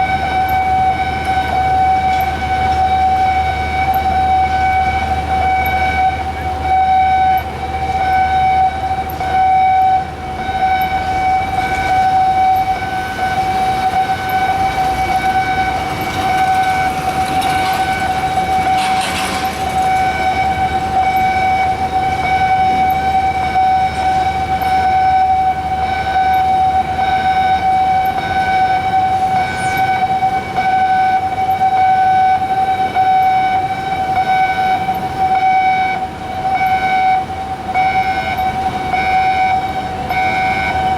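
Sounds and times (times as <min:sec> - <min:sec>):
electronic alarm horn steady tone: 0:00.0 - 0:40.9.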